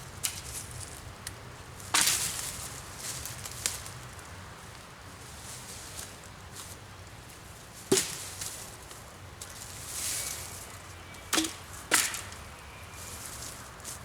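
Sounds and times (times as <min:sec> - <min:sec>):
wooden branches cracking: 0:07.9 - 0:10.4, 0:11.2 - 0:12.6.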